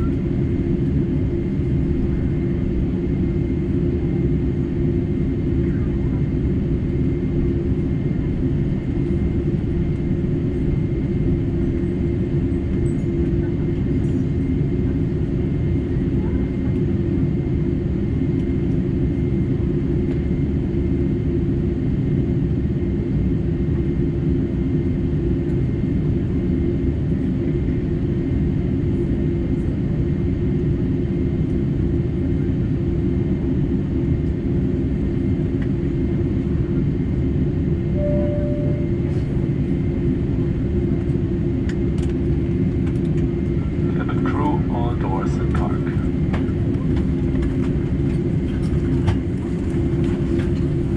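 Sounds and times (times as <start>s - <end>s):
aircraft cabin rumble and hum: 0.0s - 50.9s
short single tone: 38.0s - 39.2s.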